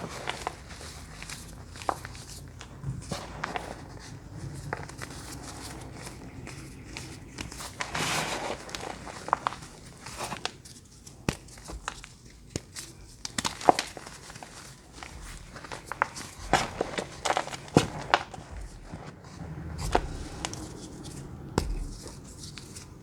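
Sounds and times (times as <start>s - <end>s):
crunching of crunchy bars: 7.7s - 22.8s.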